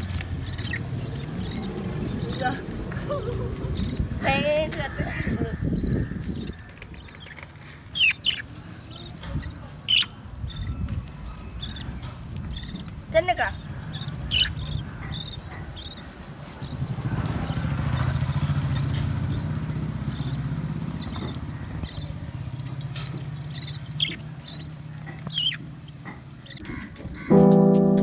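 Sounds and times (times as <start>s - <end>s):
vehicle engine passing by: 0.0s - 4.3s, 16.5s - 24.0s.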